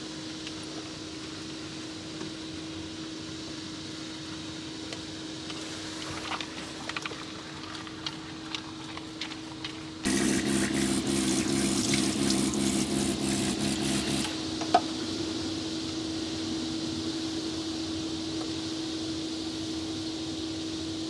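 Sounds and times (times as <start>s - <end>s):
low pump buzz: 10.1s - 14.4s
steady low hum: 10.1s - 14.4s
water running from a tap: 10.1s - 14.4s.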